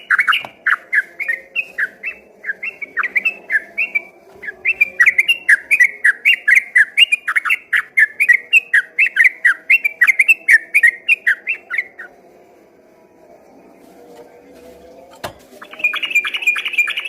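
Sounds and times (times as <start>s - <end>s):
bird singing bubbly whistles: 15.6s - 17.0s.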